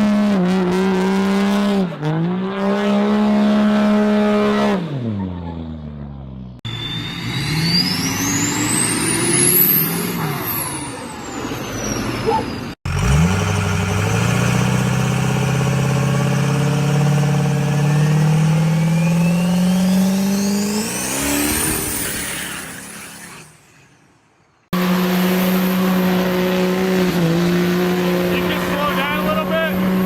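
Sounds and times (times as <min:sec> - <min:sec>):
diesel truck engine pulling: 0:00.0 - 0:24.0, 0:24.8 - 0:30.0
high rising whistle: 0:06.6 - 0:12.1, 0:18.4 - 0:23.9.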